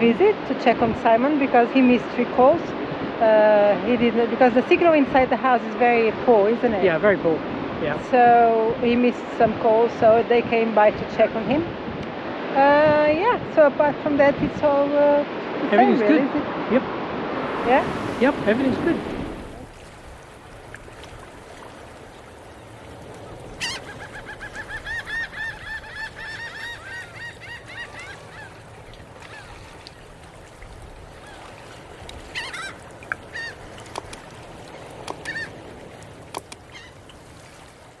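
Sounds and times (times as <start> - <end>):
bird honking calls: 23.2 - 29.7, 32.2 - 35.7, 36.3 - 37.1.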